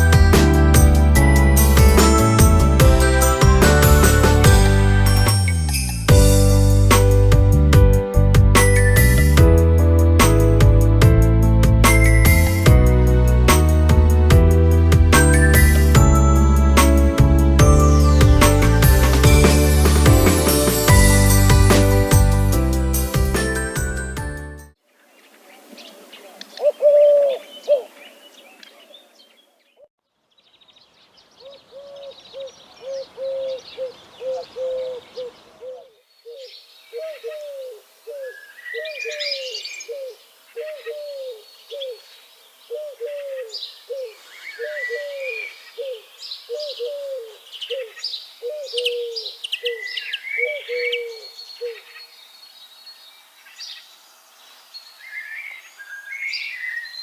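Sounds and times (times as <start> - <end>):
songbirds chirping and trilling: 24.9 - 57.0
dove cooing: 26.0 - 28.1, 31.4 - 42.0, 42.7 - 51.9.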